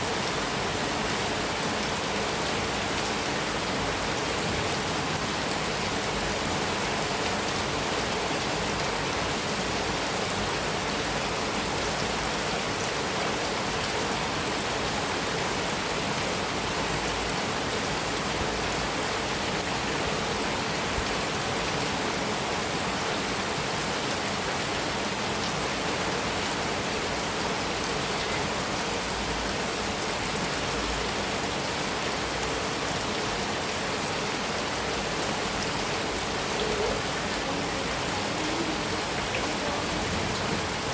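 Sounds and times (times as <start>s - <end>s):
heavy rain on a metal roof: 0.0s - 40.9s.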